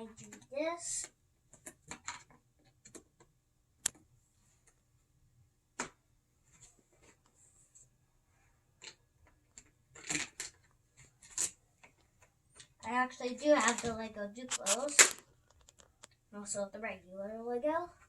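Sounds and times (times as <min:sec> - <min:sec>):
plastic track pieces clicking: 0:11.2 - 0:11.6, 0:14.5 - 0:15.9.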